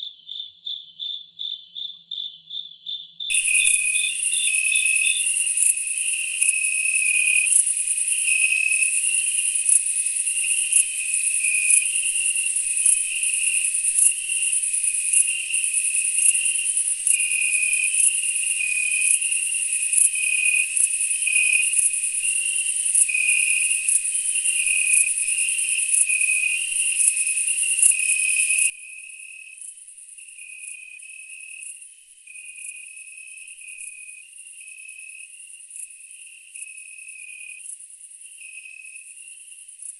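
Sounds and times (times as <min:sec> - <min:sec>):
insects pulsing chirp: 0:00.0 - 0:39.9
insects trilling high: 0:03.3 - 0:28.7.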